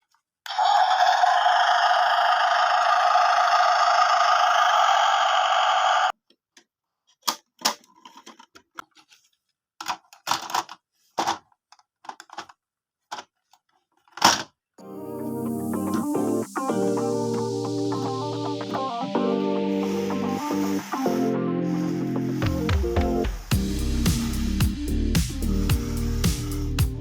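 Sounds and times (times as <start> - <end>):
small clicks and knocks: 6.2 - 14.5
steady hiss: 23.4 - 27.0.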